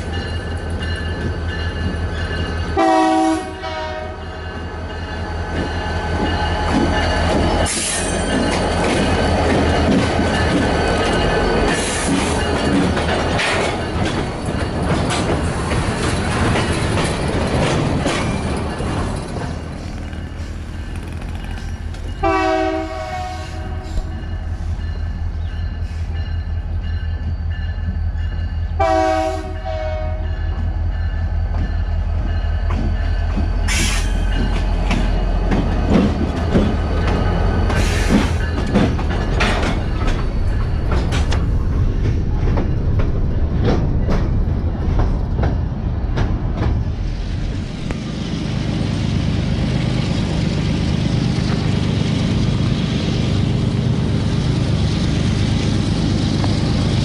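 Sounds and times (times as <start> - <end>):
diesel locomotive engine rumbling: 0.0 - 57.0
train horn blasts: 2.8 - 4.4, 22.2 - 24.5, 28.8 - 30.4.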